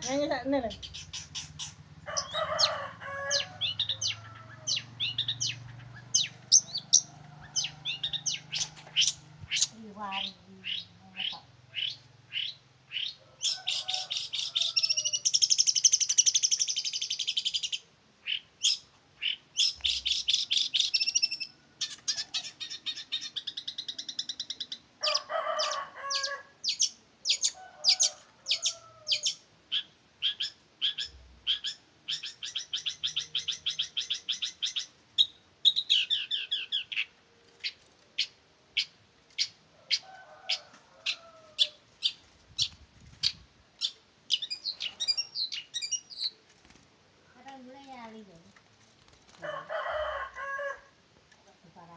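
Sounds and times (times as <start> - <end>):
shrike singing chipping trills: 0.0 - 24.8, 42.0 - 46.4.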